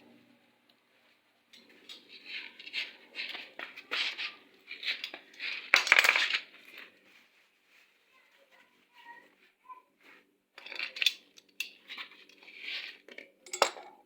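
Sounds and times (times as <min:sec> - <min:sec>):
metal tools clinking and scraping: 0:01.5 - 0:06.9, 0:10.6 - 0:14.0.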